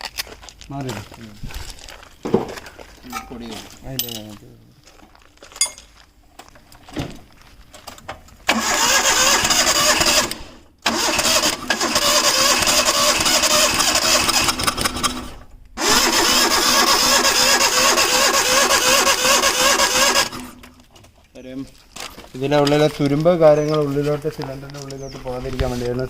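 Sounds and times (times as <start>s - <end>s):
engine cranking on starter motor: 8.4s - 20.7s.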